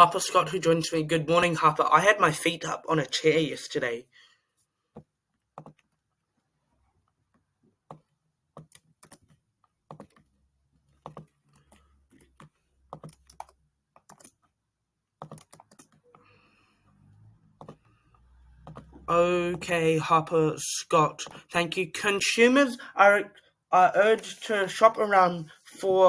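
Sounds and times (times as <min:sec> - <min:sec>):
faint keyboard typing: 0:04.9 - 0:06.3, 0:07.0 - 0:14.6, 0:15.2 - 0:19.7.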